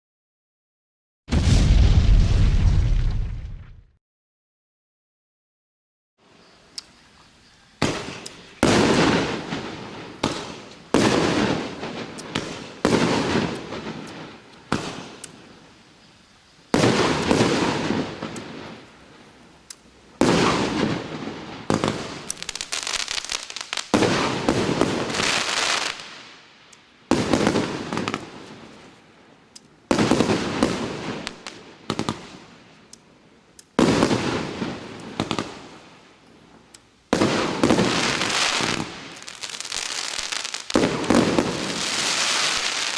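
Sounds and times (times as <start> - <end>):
firework bangs with crackling hiss: 1.3 - 3.8, 7.8 - 15.6, 16.7 - 18.9, 20.1 - 26.4, 27.1 - 28.9, 29.9 - 32.7, 33.8 - 36.0, 37.1 - 42.9.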